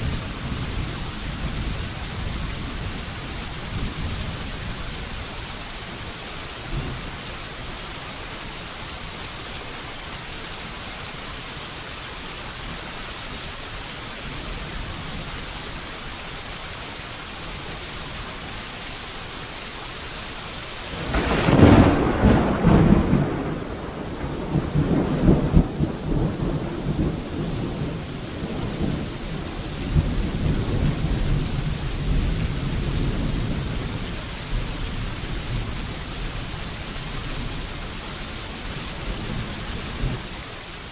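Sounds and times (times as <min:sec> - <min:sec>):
steady rain: 0:00.0 - 0:40.9
thunder crack and rumble: 0:21.0 - 0:34.1.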